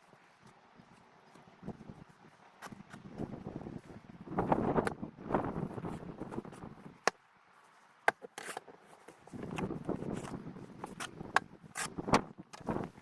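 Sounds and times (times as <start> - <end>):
shovel scraping snow: 8.3 - 9.4, 10.0 - 12.1
snow shovel striking snow: 10.1 - 12.2.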